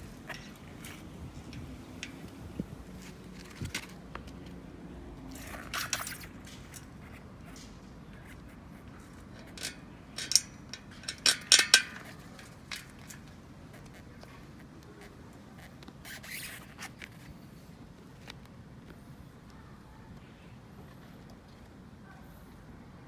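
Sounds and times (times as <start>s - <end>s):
sharp clicks and scrapes: 5.3s - 17.3s.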